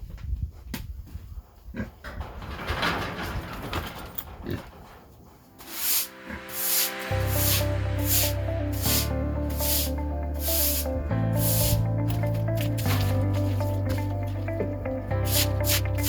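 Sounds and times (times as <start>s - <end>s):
music with a regular beat: 6.5s - 16.0s.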